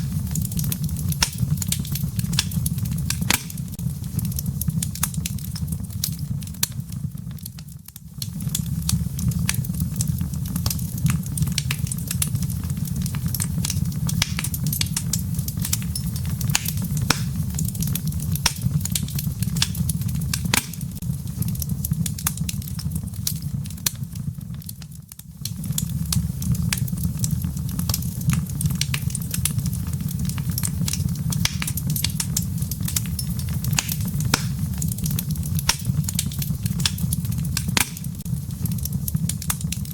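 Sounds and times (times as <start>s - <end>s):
embers popping: 0.0s - 39.9s
low rumble of flames: 0.0s - 39.9s
wood fire crackling: 0.0s - 39.9s.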